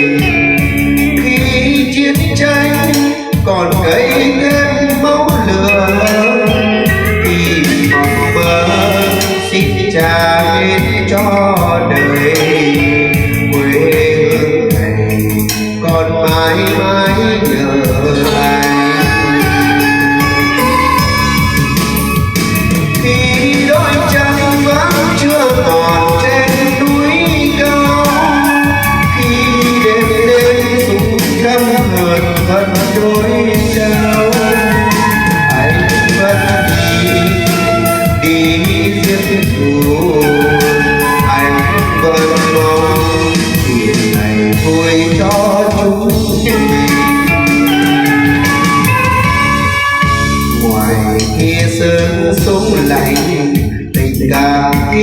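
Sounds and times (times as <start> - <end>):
slow instrumental ballad: 0.0 - 55.0
steady drum beat: 0.0 - 55.0.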